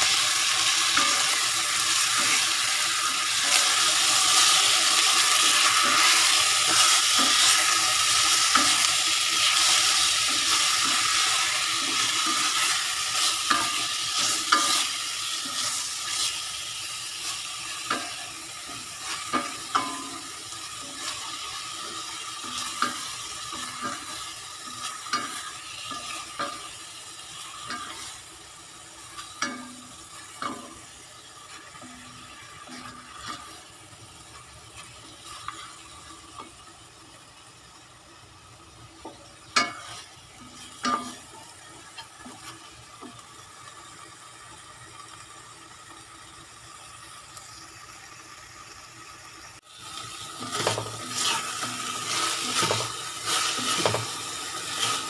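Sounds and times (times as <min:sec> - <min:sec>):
meat sizzling in oil: 0:00.0 - 0:55.0
wooden spatula scraping a pot: 0:39.6 - 0:41.4, 0:50.4 - 0:55.0.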